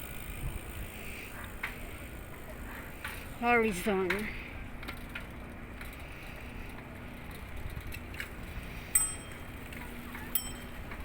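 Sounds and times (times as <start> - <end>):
ringing metallic dings: 8.9 - 9.6, 10.3 - 10.9.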